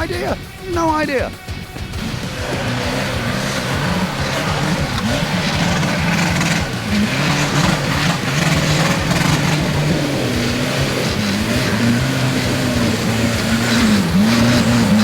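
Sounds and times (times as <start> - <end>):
truck engine revving hard: 1.8 - 15.0.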